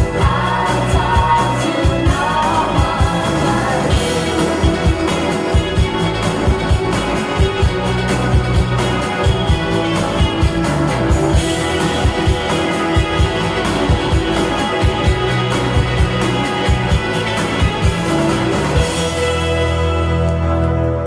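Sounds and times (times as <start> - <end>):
steady drum beat: 0.0 - 20.2
guitar: 0.0 - 21.0.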